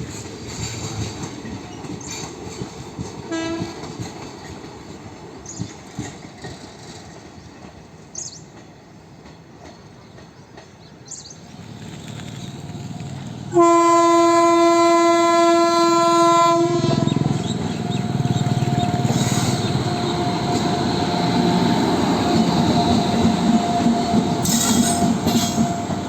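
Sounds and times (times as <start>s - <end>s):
rumble of approaching train: 0.0s - 26.0s
locomotive horn: 3.3s - 3.8s, 13.5s - 21.7s.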